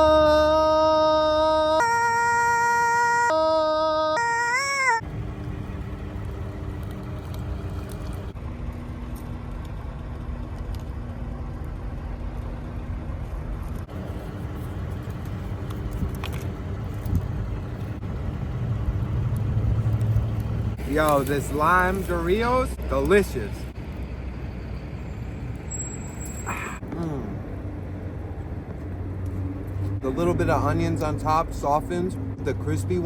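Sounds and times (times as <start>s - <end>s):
engine low rumble: 5.0s - 33.0s.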